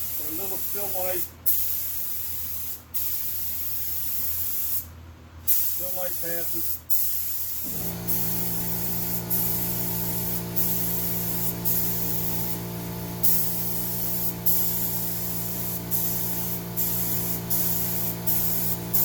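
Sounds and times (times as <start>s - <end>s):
paint sprayer hiss: 5.5s - 19.0s
sprayer motor hum: 7.6s - 19.0s.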